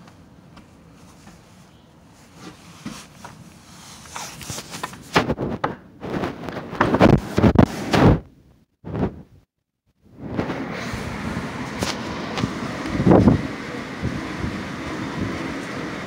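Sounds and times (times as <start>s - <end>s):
wind buffeting microphone: 10.1s - 16.0s.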